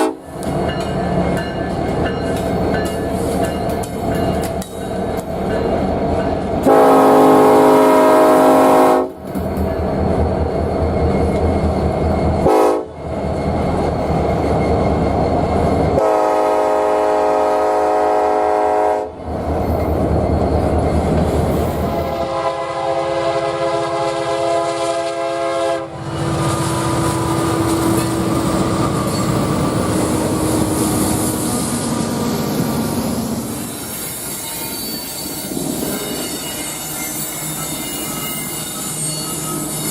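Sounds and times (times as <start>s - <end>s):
locomotive horn blasts: 0.0s - 0.3s, 6.6s - 9.2s, 12.4s - 12.9s, 16.0s - 19.2s, 22.2s - 26.4s
rail clatter: 0.0s - 6.8s, 9.2s - 16.2s, 25.9s - 39.9s
passing train rumble: 0.0s - 39.9s.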